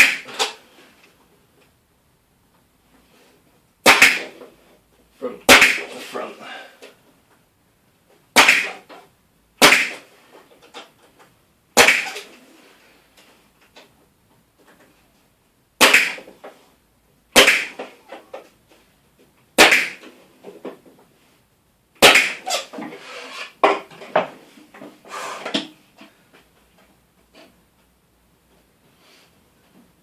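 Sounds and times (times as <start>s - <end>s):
pin nailer shots: 0.0s - 0.6s, 3.8s - 4.5s, 5.5s - 6.0s, 8.4s - 8.9s, 9.6s - 10.1s, 11.8s - 12.3s, 15.8s - 16.3s, 17.4s - 18.0s, 19.6s - 20.1s, 22.0s - 22.5s.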